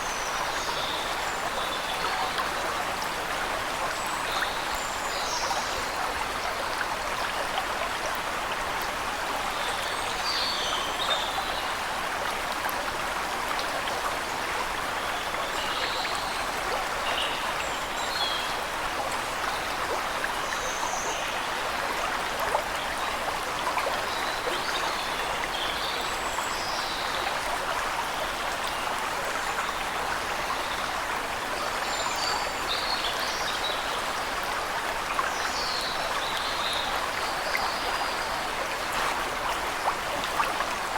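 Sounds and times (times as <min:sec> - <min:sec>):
waterfall rushing: 0:38.5 - 0:40.5.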